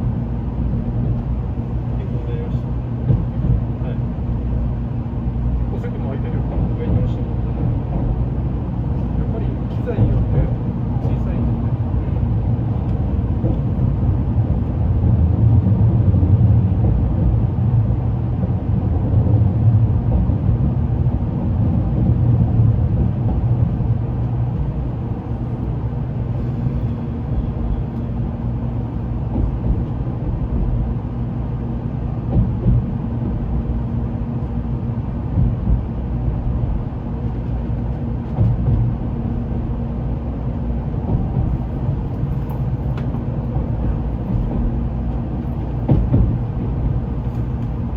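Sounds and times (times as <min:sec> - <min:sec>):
train running rumble: 0:00.0 - 0:47.9.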